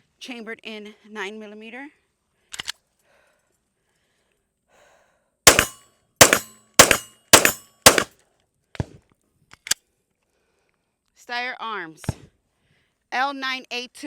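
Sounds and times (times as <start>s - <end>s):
pistol shots: 5.5s - 8.1s.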